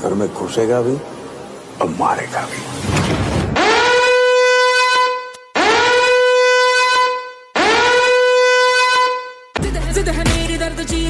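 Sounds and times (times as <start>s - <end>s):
war horn blasts: 3.6s - 9.5s.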